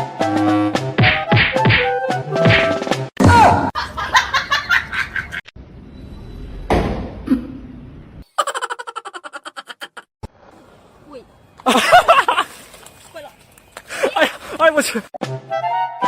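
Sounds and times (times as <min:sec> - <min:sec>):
people laughing: 0:03.8 - 0:05.4, 0:08.3 - 0:10.1, 0:11.6 - 0:12.5
sudden thud: 0:06.6 - 0:07.2.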